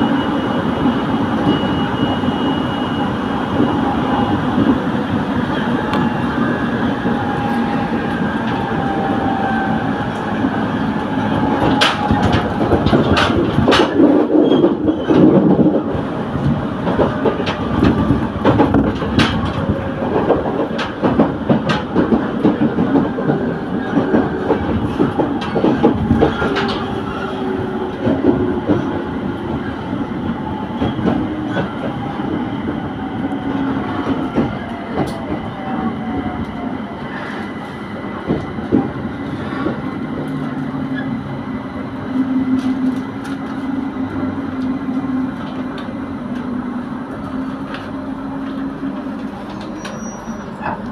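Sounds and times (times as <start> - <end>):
electric train rumbling on rails: 0.0 - 50.9.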